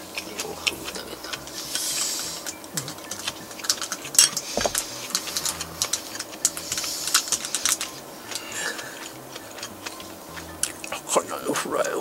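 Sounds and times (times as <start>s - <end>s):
crunchy chewing: 0.0s - 12.0s.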